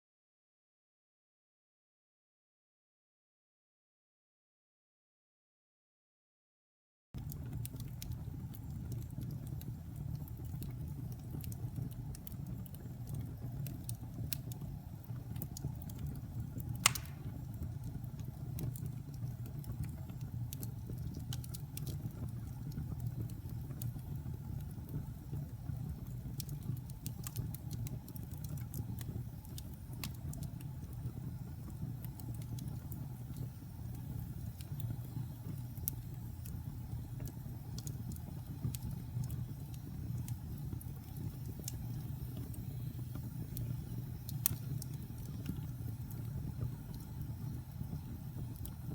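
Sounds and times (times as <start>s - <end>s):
fire crackling: 7.2s - 48.9s
fire rumbling in fireplace: 7.2s - 48.9s
sharp fire pop: 16.8s - 17.4s.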